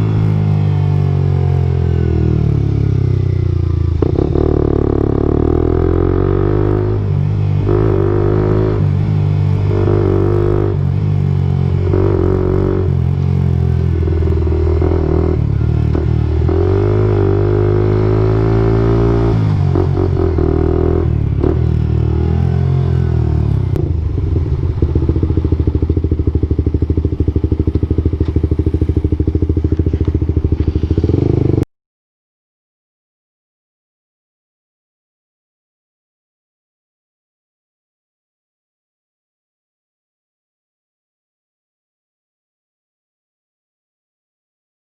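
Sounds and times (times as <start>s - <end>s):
motorcycle engine revving and idling: 0.0s - 31.7s.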